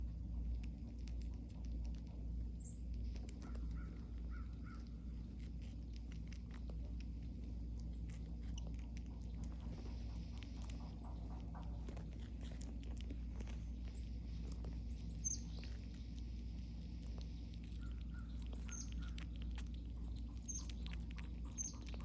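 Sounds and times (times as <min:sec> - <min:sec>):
squirrels gnawing and chewing: 0:00.0 - 0:22.0
steady low hum: 0:00.0 - 0:22.0.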